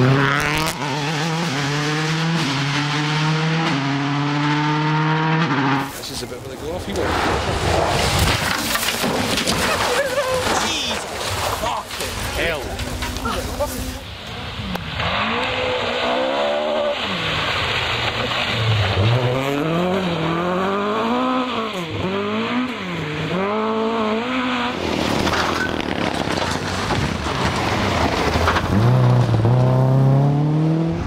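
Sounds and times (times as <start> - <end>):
car engine revving hard: 0.0 - 5.9, 14.7 - 25.2, 28.7 - 31.0
tyres rushing on gravel: 5.9 - 15.2, 24.8 - 29.6.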